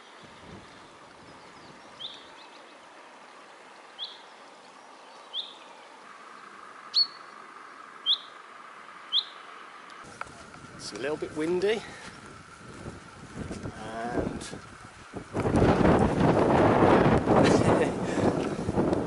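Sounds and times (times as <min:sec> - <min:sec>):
small bird chirping: 0:00.0 - 0:10.0.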